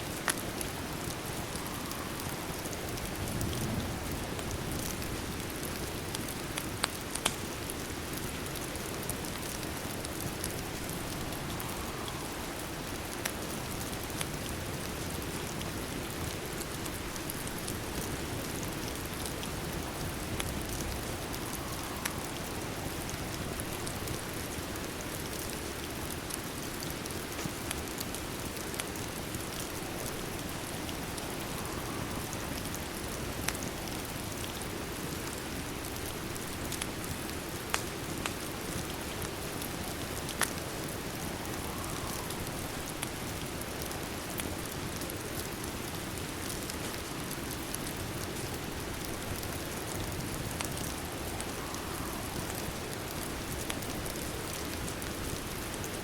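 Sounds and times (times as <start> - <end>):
rain falling: 0.0 - 56.0
crackling fire pops: 0.1 - 3.6, 4.3 - 14.3.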